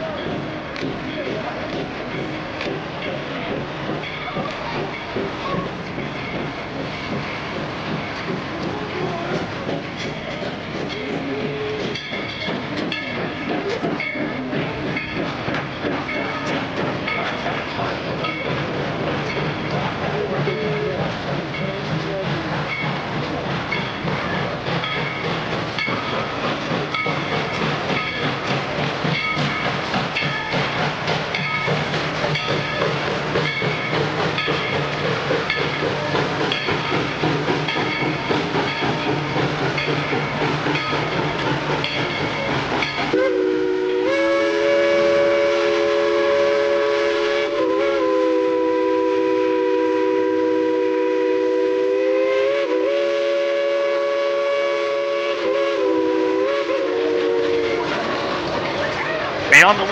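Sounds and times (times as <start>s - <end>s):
steam locomotive clatter: 0.0s - 59.9s
steam whistle blast: 43.1s - 58.0s.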